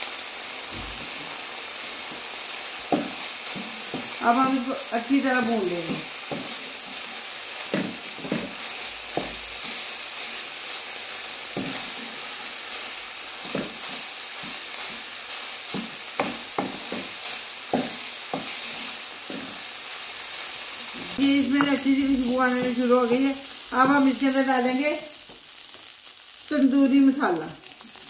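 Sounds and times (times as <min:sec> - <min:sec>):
meat sizzling in a pan: 0:00.0 - 0:28.0
wooden spatula scraping a pan: 0:05.7 - 0:10.8, 0:13.3 - 0:24.4.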